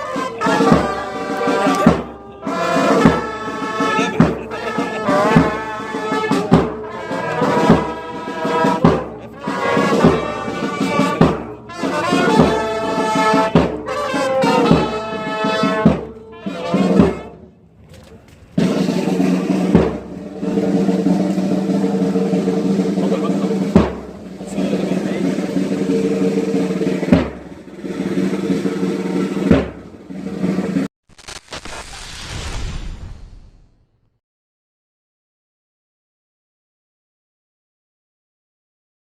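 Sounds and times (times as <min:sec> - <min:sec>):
brass band music: 0:00.0 - 0:17.6, 0:18.6 - 0:30.9
drum strikes: 0:00.2 - 0:17.3, 0:18.6 - 0:30.9.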